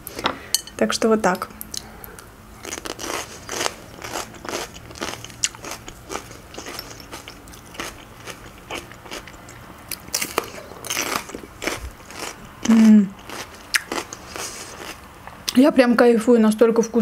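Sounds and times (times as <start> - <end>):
crunchy vegetables being chewed: 1.6 - 15.6.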